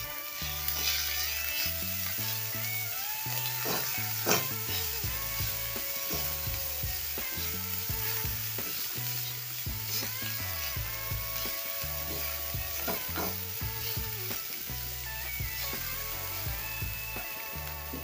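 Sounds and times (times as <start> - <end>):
background music: 0.0 - 18.0
onions sizzling in oil: 0.0 - 18.0
wooden spatula scraping pan: 0.7 - 2.4.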